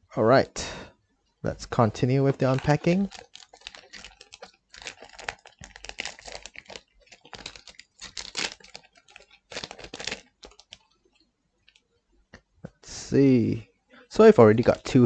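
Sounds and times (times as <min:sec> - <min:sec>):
foil pack crinkling: 0:02.3 - 0:11.8.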